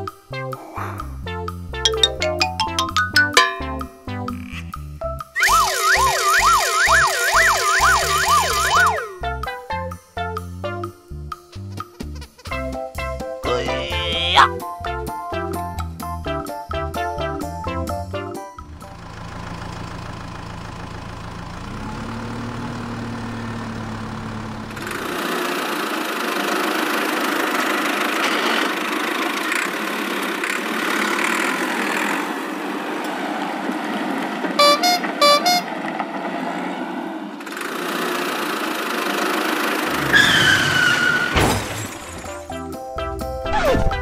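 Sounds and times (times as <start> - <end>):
falling whistle: 5.4 - 9.0
cartoon engine hum: 5.4 - 9.4
short horn toots: 34.6 - 35.7.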